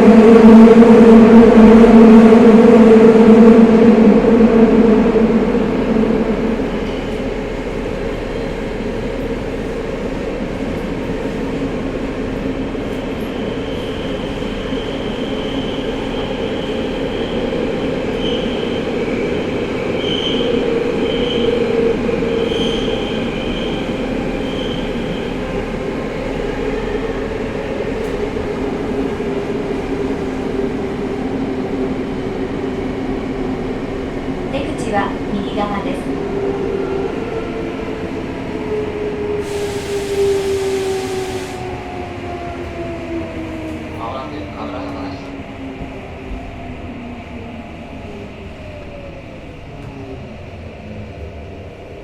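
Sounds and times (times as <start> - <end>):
subway car rumble and motor hum: 0.0 - 52.0
high wheel squeals: 22.3 - 25.4.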